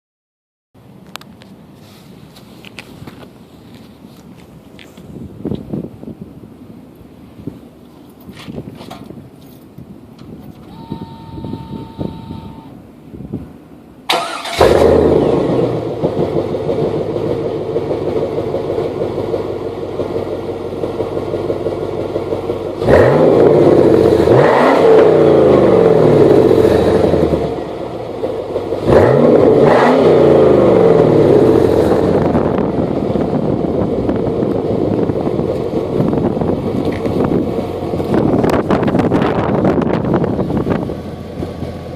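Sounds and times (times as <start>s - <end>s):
car engine cranking and starting: 14.0s - 41.9s
car engine idling: 14.1s - 24.4s, 25.2s - 29.6s, 30.6s - 41.9s
car engine revving: 14.1s - 41.9s.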